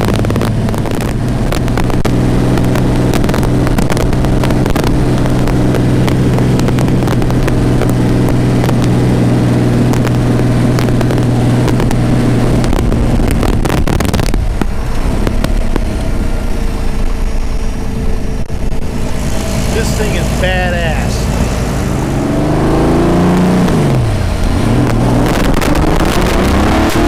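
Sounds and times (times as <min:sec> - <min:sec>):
sharp pops and clicks: 0:00.0 - 0:16.2, 0:23.3 - 0:27.0
racing engine running loud: 0:11.0 - 0:27.0.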